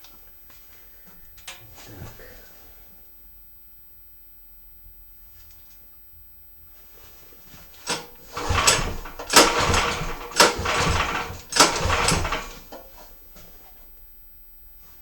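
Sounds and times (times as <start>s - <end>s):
petrol engine cranking: 7.8s - 12.8s.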